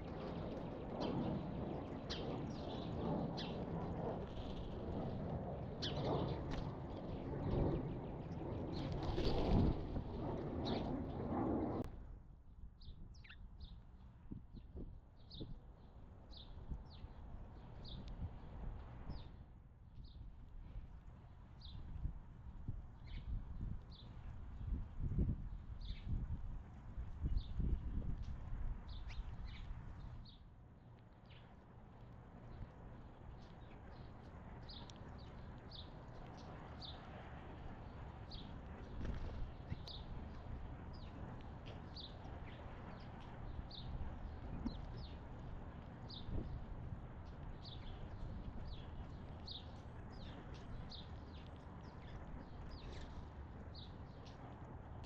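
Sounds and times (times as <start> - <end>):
small songbirds chirping: 12.8 - 13.8, 14.6 - 18.2, 21.6 - 21.9, 23.0 - 24.3, 25.8 - 26.2, 28.9 - 30.5, 32.5 - 37.1, 37.8 - 54.6.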